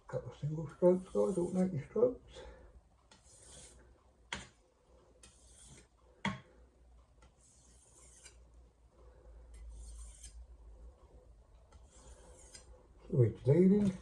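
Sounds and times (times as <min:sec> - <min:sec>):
knife scraping on whetstone: 0:00.9 - 0:01.8, 0:03.1 - 0:03.9, 0:05.2 - 0:05.9, 0:07.3 - 0:08.5, 0:09.6 - 0:10.4, 0:11.7 - 0:12.8.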